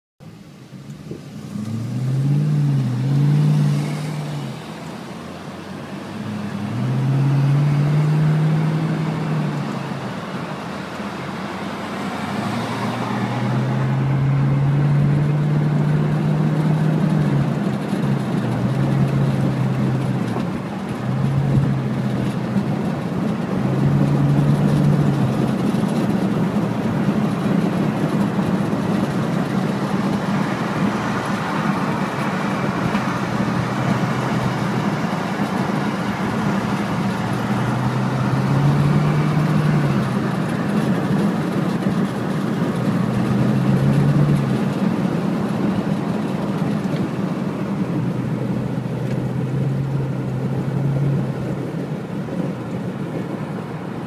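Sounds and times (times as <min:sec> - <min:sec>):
road and tyre noise: 0:00.2 - 0:54.0
car engine accelerating: 0:00.7 - 0:54.0.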